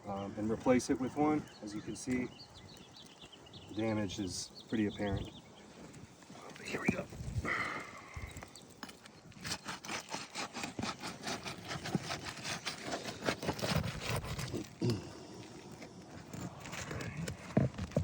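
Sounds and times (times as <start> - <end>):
tool scraping under shingles: 5.6 - 18.0.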